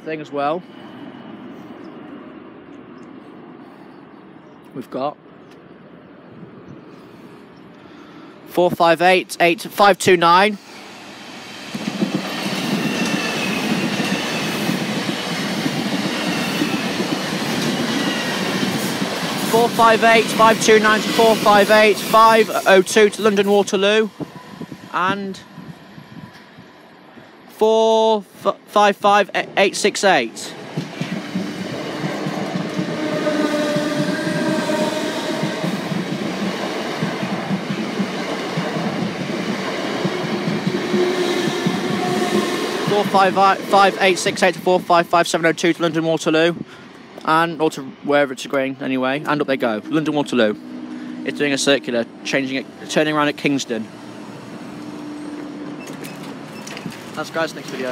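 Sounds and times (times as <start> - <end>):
train wheels rumbling on rails: 10.5 - 27.3, 29.4 - 57.9
train horn blast: 31.6 - 35.9, 40.1 - 44.3, 49.6 - 53.0, 53.6 - 55.8.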